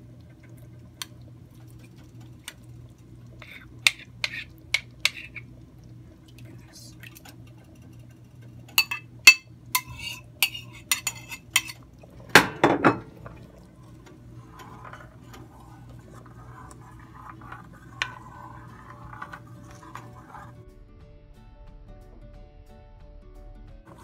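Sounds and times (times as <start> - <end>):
faint scraping and stirring: 0.2 - 20.7
metal spoon clinking on ceramic bowl: 8.8 - 11.8.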